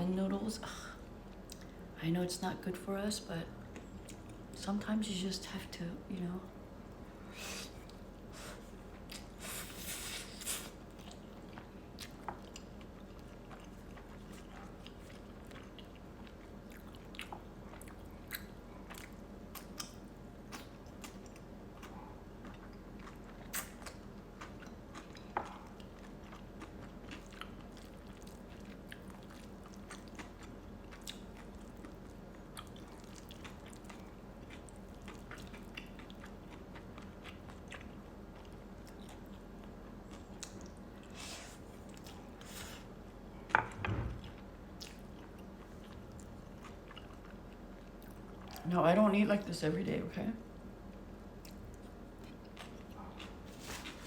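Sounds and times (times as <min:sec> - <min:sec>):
soft chewing and biting: 0:03.6 - 0:04.6, 0:07.6 - 0:43.5, 0:44.2 - 0:48.7, 0:50.8 - 0:54.0.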